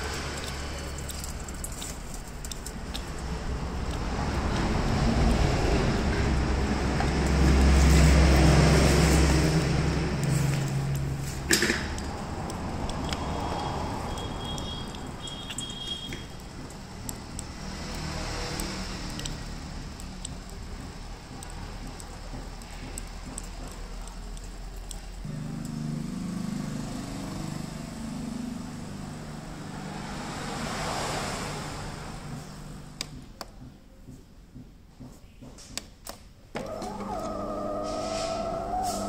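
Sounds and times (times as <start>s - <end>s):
coffee machine humming: 25.0s - 33.0s, 36.6s - 39.0s
coffee machine hiss: 37.8s - 39.0s.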